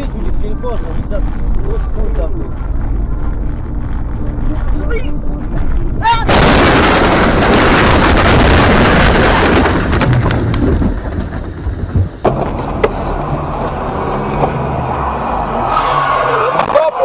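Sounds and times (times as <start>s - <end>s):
engine and road noise: 0.0s - 17.0s
car collision crunching: 6.3s - 16.9s.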